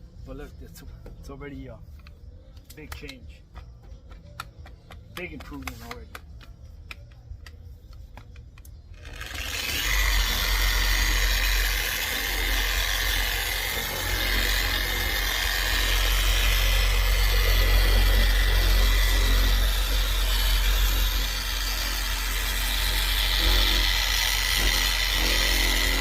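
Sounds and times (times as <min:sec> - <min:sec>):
polisher running: 0:09.0 - 0:26.0.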